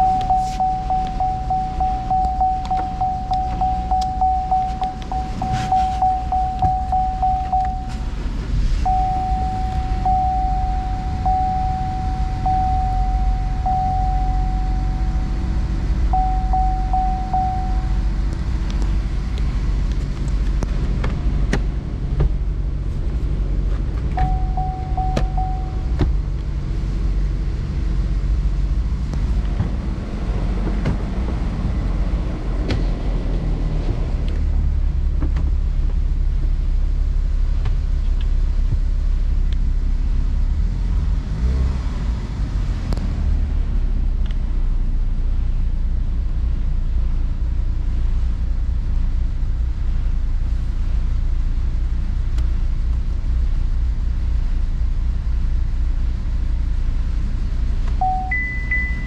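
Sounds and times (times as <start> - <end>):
broken high tone: 0.0 - 8.1, 8.8 - 18.2, 24.2 - 26.0
car engine running: 0.0 - 59.0.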